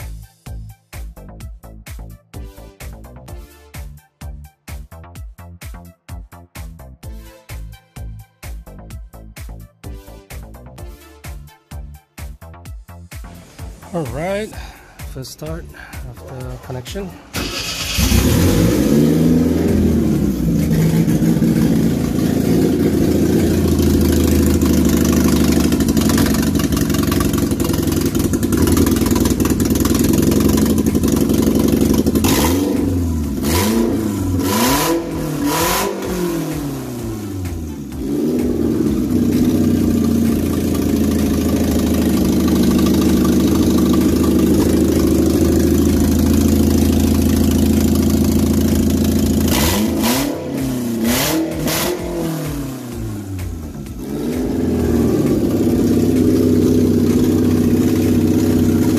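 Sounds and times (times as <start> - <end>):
car engine idling and revving: 13.1 - 58.9.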